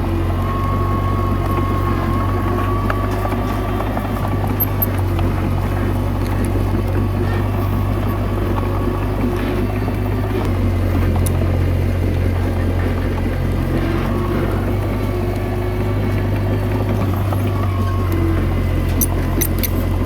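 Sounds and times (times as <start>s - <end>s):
bulldozer diesel engine droning: 0.0s - 20.0s.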